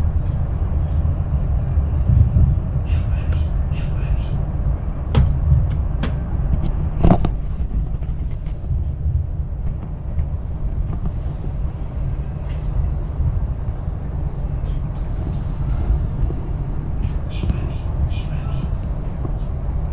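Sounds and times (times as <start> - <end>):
train interior low rumble: 0.0 - 19.9.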